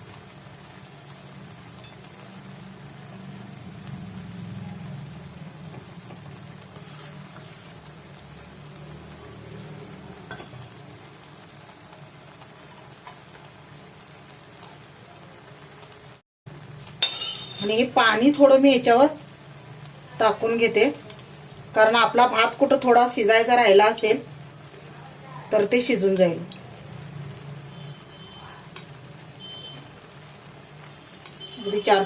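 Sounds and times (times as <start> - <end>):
onion sprinkled on rice: 6.6 - 8.0.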